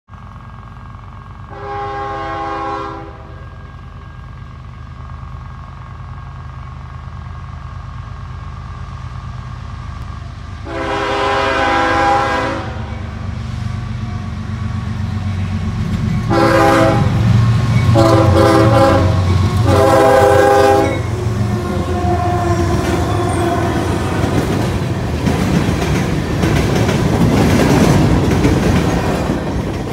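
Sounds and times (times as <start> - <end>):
diesel locomotive rumble: 0.1 - 29.9
locomotive air horn blasts: 1.5 - 3.6, 10.6 - 13.0, 16.3 - 17.3, 17.9 - 24.4
train wheels clattering on rails: 12.8 - 29.9.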